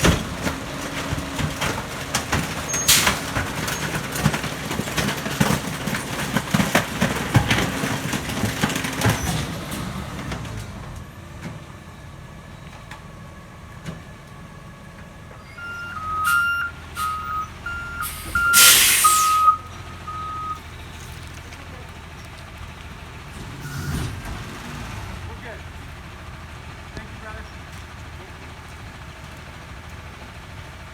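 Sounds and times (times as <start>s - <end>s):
garbage truck packer crushing waste: 0.0s - 11.8s, 15.1s - 28.0s
truck engine running: 0.0s - 30.9s
reversing alarm beeping: 15.4s - 20.6s, 23.6s - 24.1s
air brake hiss: 18.0s - 19.5s.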